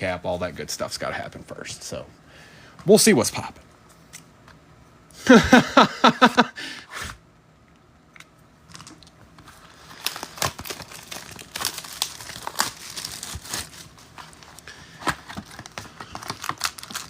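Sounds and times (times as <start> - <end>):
plastic wrapping crinkling and tearing: 8.7 - 17.0.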